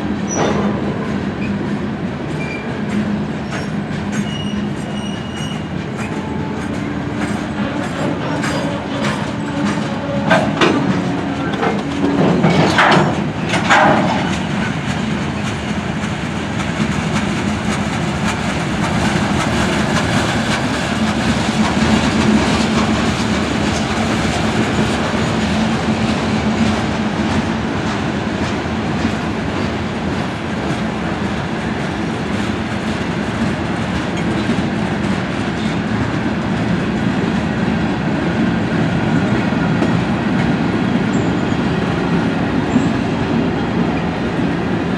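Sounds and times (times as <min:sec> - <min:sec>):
clickety-clack over rail joints: 0:00.0 - 0:44.9
freight train wheels rumbling: 0:00.0 - 0:44.9.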